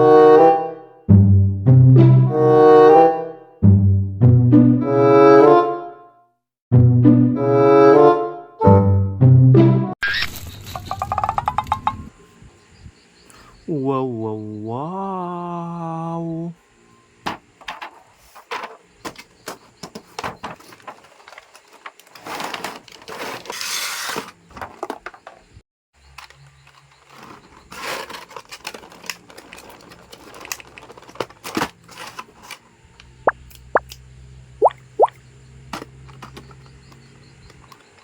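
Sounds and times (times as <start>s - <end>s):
plastic toys clicking and tapping: 10.9s - 12.1s, 35.7s - 38.0s
plastic packaging crinkling: 27.1s - 32.4s.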